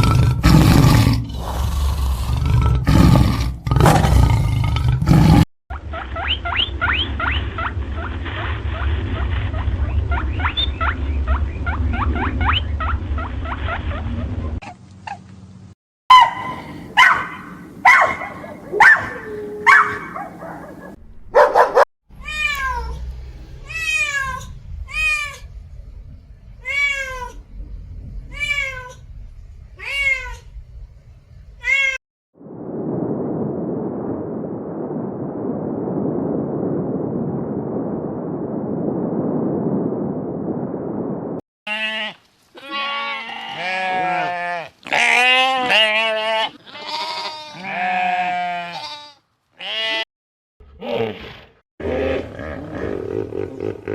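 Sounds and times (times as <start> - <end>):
dog yipping: 16.1 - 21.8
cat meowing: 22.2 - 23.0, 23.6 - 25.4, 26.6 - 27.4, 28.3 - 29.0, 29.8 - 30.5, 31.6 - 32.0
sheep bleating: 41.7 - 50.1.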